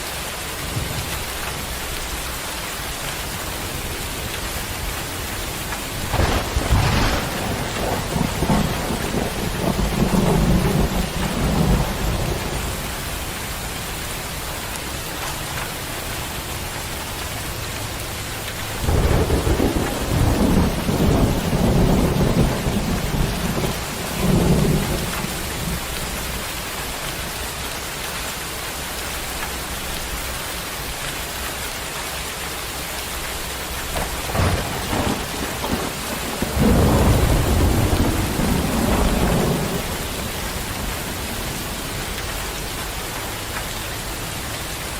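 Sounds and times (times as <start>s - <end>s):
steady rain falling: 0.0s - 44.9s
rolling thunder: 4.8s - 13.7s, 18.6s - 26.5s, 33.9s - 43.0s
thunder crack: 5.9s - 13.0s, 18.6s - 25.8s, 33.9s - 41.8s.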